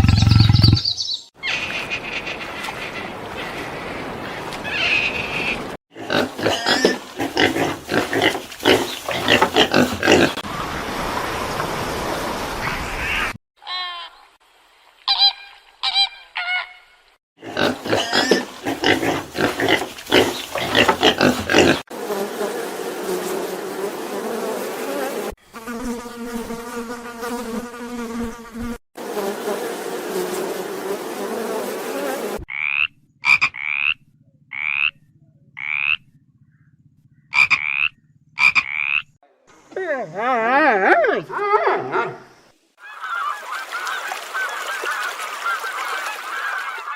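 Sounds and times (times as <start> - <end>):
short chirping calls: 0.2 - 2.2
buzzing animal calls: 4.7 - 10.4, 17.4 - 39.1
croak-like calls: 32.5 - 39.2.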